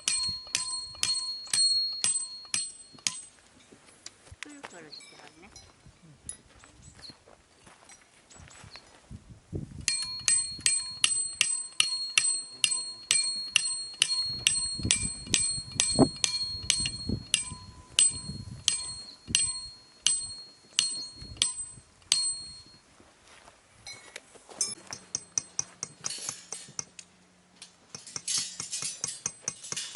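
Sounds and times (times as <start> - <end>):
metal object struck ringing: 9.9 - 22.8.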